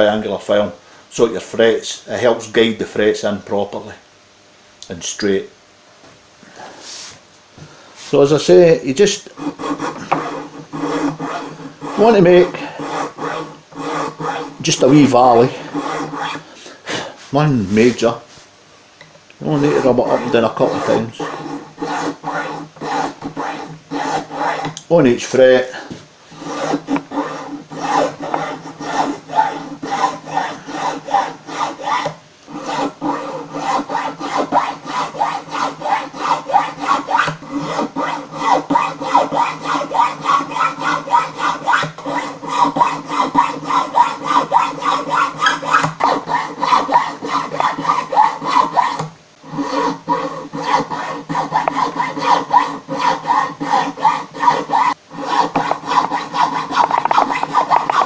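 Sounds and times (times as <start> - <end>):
file rasping on wood: 9.0 - 16.5, 19.4 - 24.8, 26.3 - 58.0.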